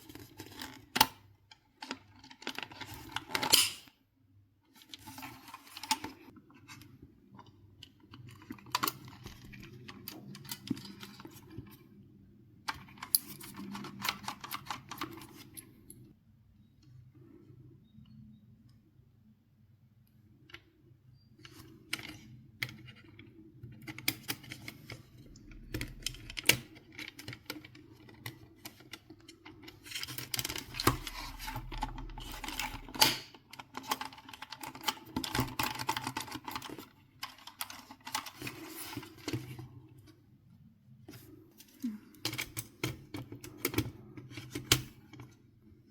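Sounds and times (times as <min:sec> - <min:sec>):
clicks and rattles of plastic parts: 0:04.7 - 0:11.9, 0:12.6 - 0:16.1, 0:20.3 - 0:40.2, 0:41.1 - 0:45.4.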